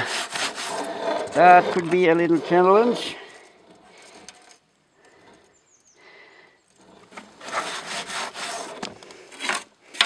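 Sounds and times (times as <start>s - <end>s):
scraping and rubbing from handling: 0.0s - 4.6s, 6.8s - 10.0s.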